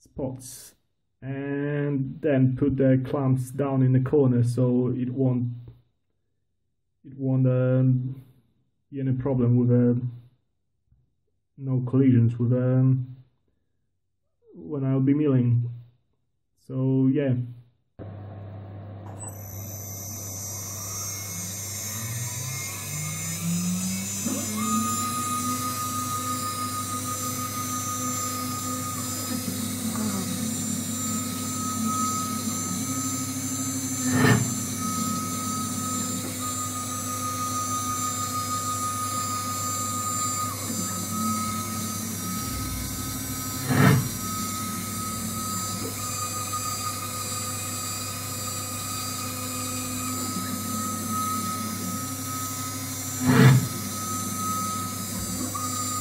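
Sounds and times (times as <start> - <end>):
cnc motors whining and humming: 19.0 - 56.0
drill cutting into aluminium: 19.2 - 56.0.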